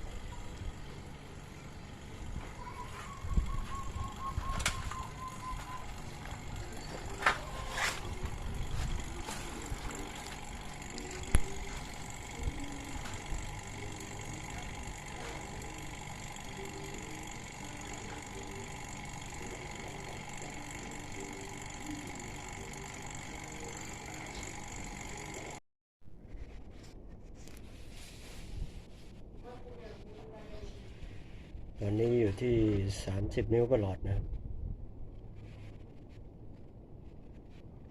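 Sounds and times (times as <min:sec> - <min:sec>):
vacuum pump running: 0:00.0 - 0:25.6.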